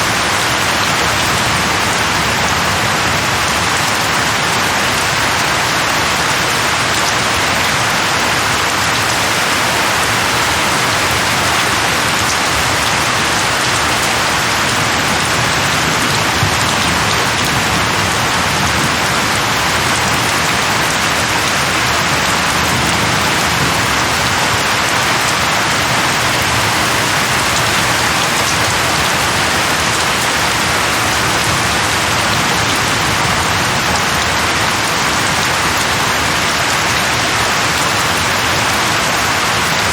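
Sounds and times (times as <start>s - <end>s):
heavy rain falling: 0.0s - 39.9s
raindrops ticking: 25.2s - 32.9s.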